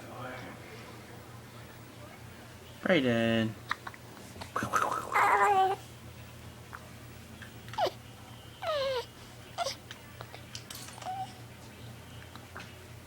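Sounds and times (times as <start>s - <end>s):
baby cooing and squealing: 5.1s - 5.8s.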